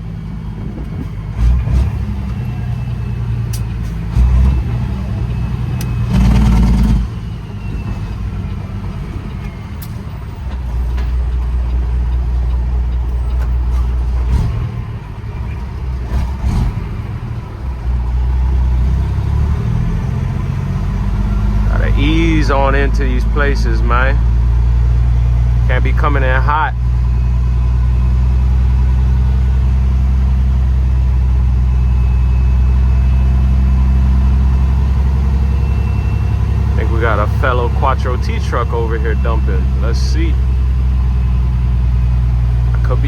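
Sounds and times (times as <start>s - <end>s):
diesel truck engine surging: 0.0s - 43.0s
loud engine burst: 5.9s - 7.3s.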